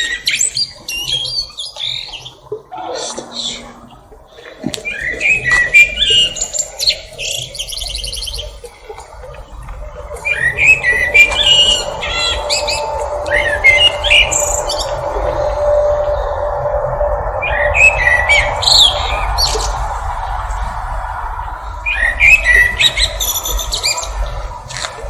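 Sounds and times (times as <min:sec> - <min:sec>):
birds chirping: 0:00.6 - 0:25.0
steady low hum: 0:09.3 - 0:25.0.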